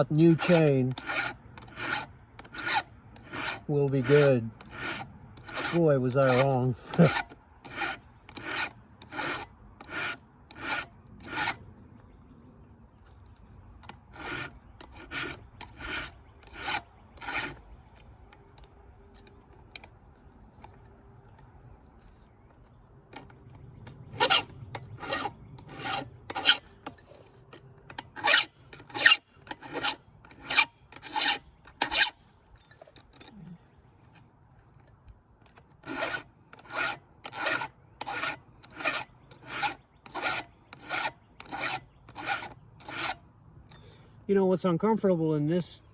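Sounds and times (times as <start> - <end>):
file rasping on chainsaw chain: 0.0 - 11.6, 13.8 - 18.0, 23.1 - 33.3, 35.5 - 43.8.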